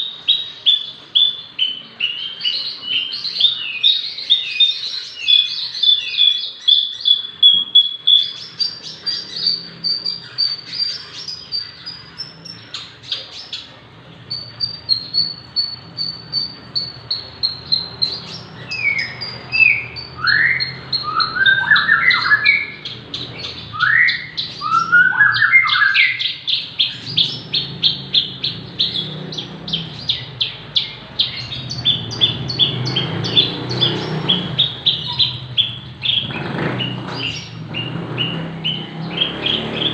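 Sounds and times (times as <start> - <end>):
bush lark singing chirps and trills: 0.0 - 13.7, 14.3 - 39.9.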